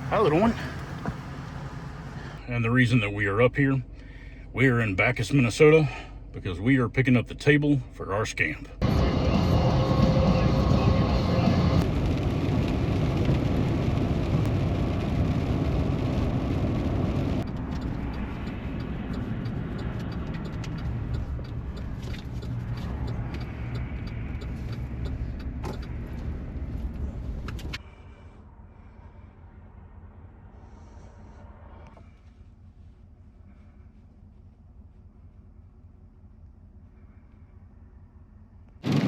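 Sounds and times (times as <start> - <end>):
car engine and tyre rumble: 0.0 - 39.0
light ticking: 17.4 - 27.8.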